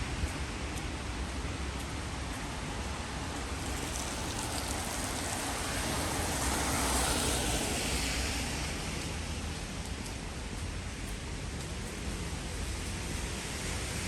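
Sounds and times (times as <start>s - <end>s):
rain hiss: 0.1s - 14.0s
car tyres hissing on wet road: 2.1s - 14.0s.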